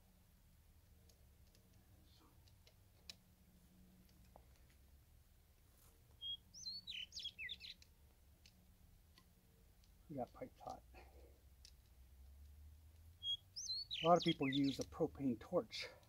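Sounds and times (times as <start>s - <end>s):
faint clicks: 0.8s - 3.3s, 7.7s - 13.2s
songbird singing: 5.8s - 16.0s.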